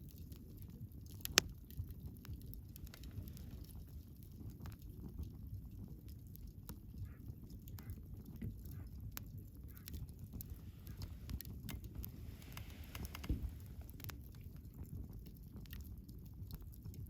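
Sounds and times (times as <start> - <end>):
campfire crackling: 0.0 - 17.0
low steady rumble: 8.5 - 16.8.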